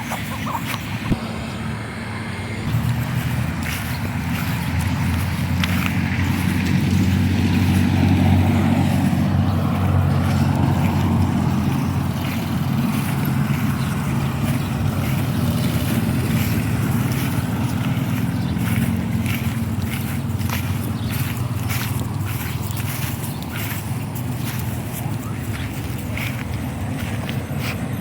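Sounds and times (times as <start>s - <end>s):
vehicle engine humming: 0.0s - 28.0s.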